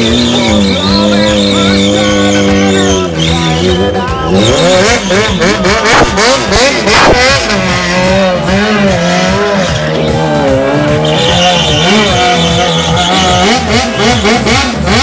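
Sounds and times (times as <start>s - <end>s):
tyre squeal: 0.0s - 6.2s, 11.0s - 14.6s
motorcycle engine revving: 0.0s - 15.0s.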